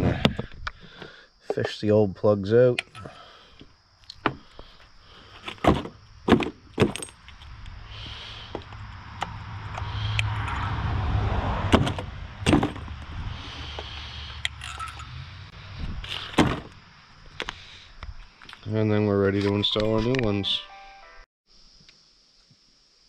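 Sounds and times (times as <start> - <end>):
metal hand tools clinking: 2.8 - 3.3, 14.4 - 15.2
low rumbling noise: 7.5 - 17.0.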